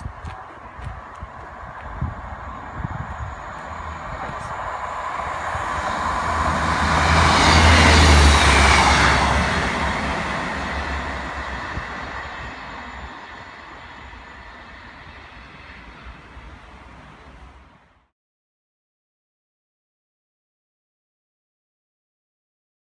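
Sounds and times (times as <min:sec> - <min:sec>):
train wheels on rails: 0:00.0 - 0:17.9
train engine hum: 0:00.0 - 0:18.1.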